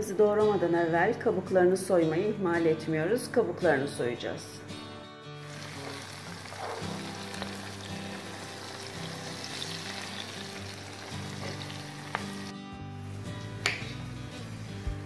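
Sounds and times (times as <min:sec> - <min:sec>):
peppers sizzling in oil: 0:05.4 - 0:15.0.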